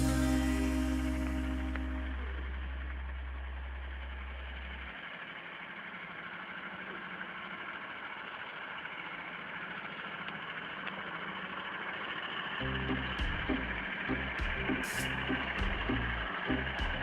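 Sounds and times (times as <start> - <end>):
music beat: 0.0 - 2.4, 12.6 - 17.0
heavy truck engine droning: 0.0 - 17.0.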